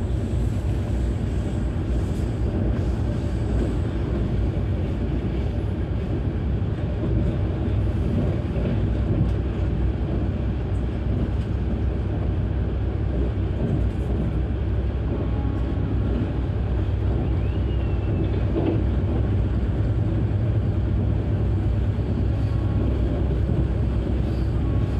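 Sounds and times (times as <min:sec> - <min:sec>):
train wheels rolling on rails: 0:00.0 - 0:24.9.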